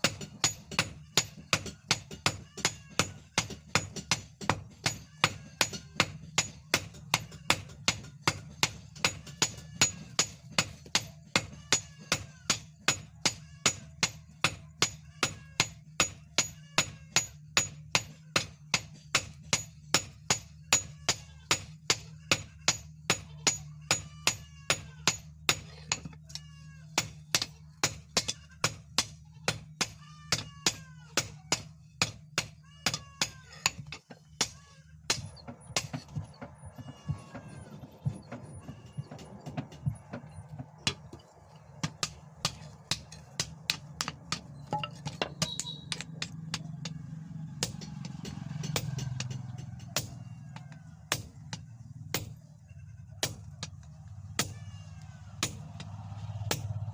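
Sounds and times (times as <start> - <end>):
hammer blows on steel anvil: 41.8 - 50.3.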